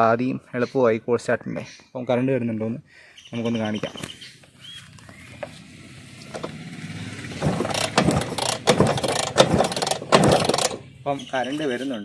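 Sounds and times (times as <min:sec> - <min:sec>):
scooter engine kick-started: 0:05.0 - 0:11.0.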